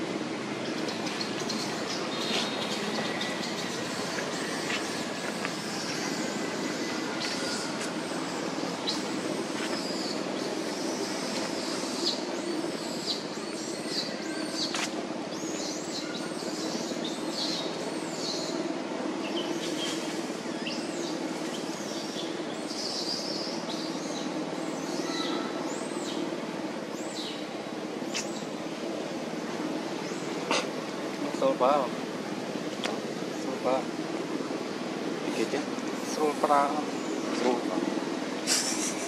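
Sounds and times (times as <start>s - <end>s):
birds chirping: 0.0s - 28.6s.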